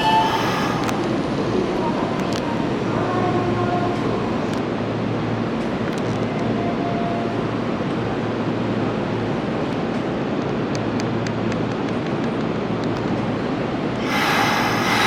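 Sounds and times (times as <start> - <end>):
train wheels rumbling: 11.7 - 15.0.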